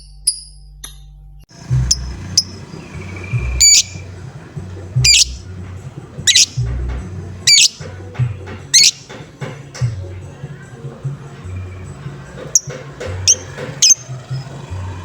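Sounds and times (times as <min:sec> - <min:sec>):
low background rumble: 0:01.5 - 0:09.0
bird giving shrill harsh calls: 0:01.8 - 0:08.0, 0:08.6 - 0:09.3, 0:13.3 - 0:14.5.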